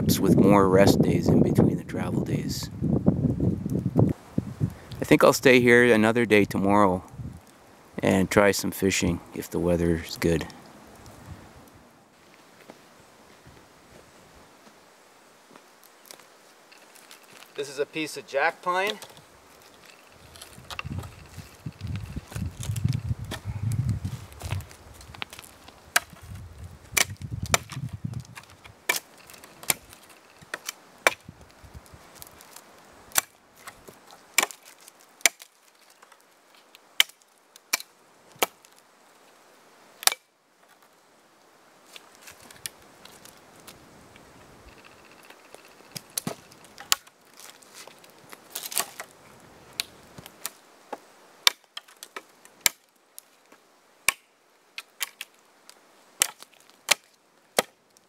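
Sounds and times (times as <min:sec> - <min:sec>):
axe chopping branches: 0:24.3 - 0:26.3, 0:26.9 - 0:31.3, 0:32.2 - 0:36.2, 0:37.0 - 0:38.8, 0:40.0 - 0:40.3, 0:46.2 - 0:49.1, 0:49.8 - 0:52.9, 0:54.0 - 0:55.3, 0:56.2 - 0:57.8.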